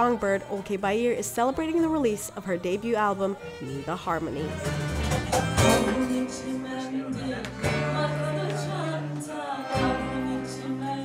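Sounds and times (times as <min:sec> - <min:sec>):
woman singing: 0:00.0 - 0:11.0
plucked string accompaniment: 0:03.0 - 0:11.0.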